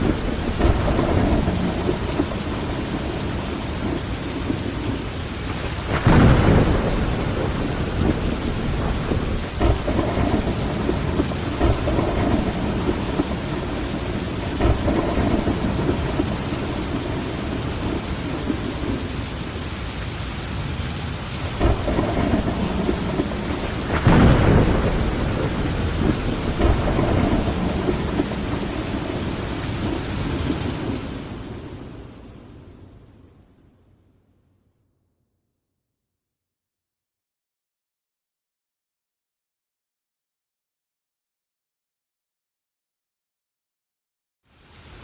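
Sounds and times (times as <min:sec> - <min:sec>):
rolling thunder: 0:00.0 - 0:19.7, 0:20.5 - 0:32.8
rain on window glass: 0:00.0 - 0:33.1.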